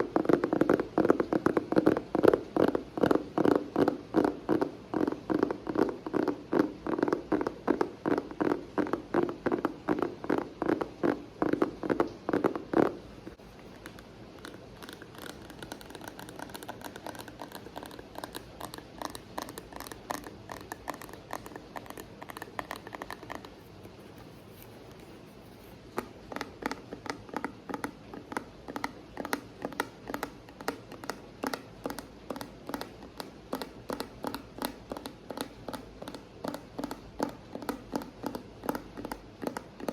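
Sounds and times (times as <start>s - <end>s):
rhythmic tapping on objects: 25.9s - 39.9s.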